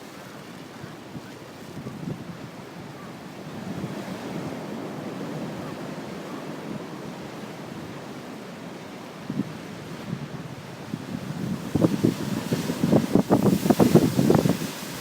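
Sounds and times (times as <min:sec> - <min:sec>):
heavy surf breaking waves: 0:00.0 - 0:15.0
wind buffeting microphone: 0:01.2 - 0:02.7, 0:09.2 - 0:15.0.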